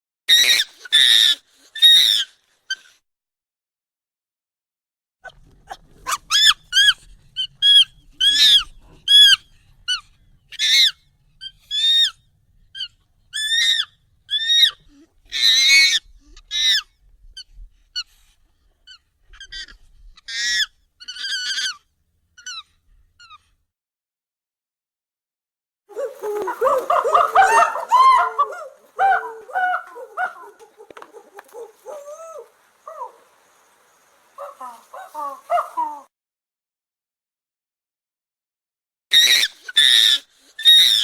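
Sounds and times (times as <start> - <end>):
high-pitched monkey calls: 0.3 - 2.9, 5.7 - 12.2, 12.8 - 18.1, 18.9 - 23.4, 25.9 - 33.7, 34.4 - 36.1, 39.1 - 41.0.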